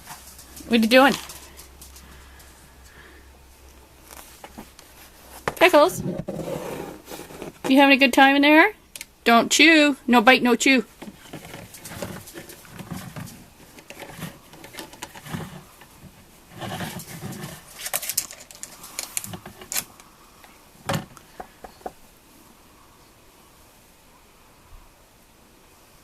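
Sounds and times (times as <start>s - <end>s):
small pet rustling: 0.0s - 7.8s, 10.8s - 20.0s.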